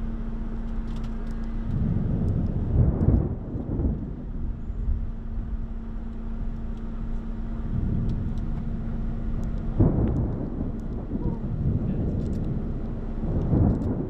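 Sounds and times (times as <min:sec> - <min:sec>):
steady hum: 0:00.0 - 0:14.0
low thunder rumble: 0:01.2 - 0:14.0
loud thunder crack: 0:01.7 - 0:05.6, 0:07.6 - 0:14.0.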